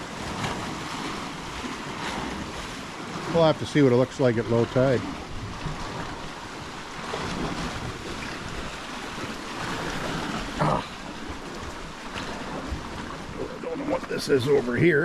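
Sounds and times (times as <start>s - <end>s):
sea waves washing on shore: 0.0s - 15.0s
wind on microphone: 4.3s - 14.8s.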